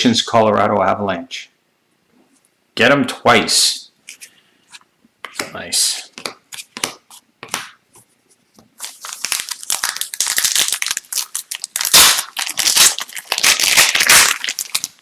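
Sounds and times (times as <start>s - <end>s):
foil wrapper crinkling and tearing: 8.8s - 15.0s.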